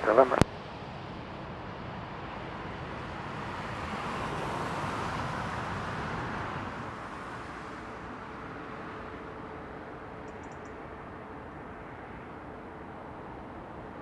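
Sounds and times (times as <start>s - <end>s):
jet engines passing by: 0.0s - 0.4s.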